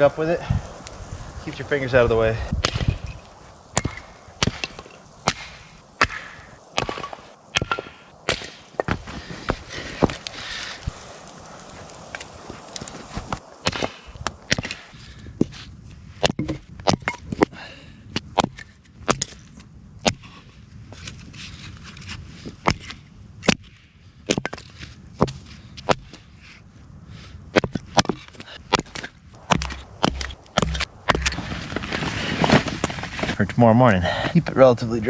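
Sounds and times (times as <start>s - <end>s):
firewood being chopped: 2.5s - 11.4s, 12.1s - 15.6s, 16.2s - 17.5s, 18.2s - 19.4s, 20.0s - 20.4s, 22.6s - 26.2s, 27.6s - 32.8s.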